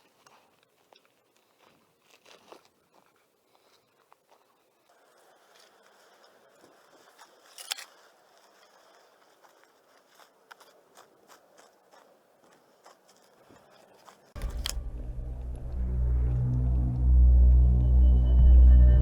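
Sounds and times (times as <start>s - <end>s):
footsteps on dry twigs: 0.0s - 14.8s
twig cracking: 7.1s - 9.6s, 14.0s - 14.8s
music: 14.4s - 19.0s.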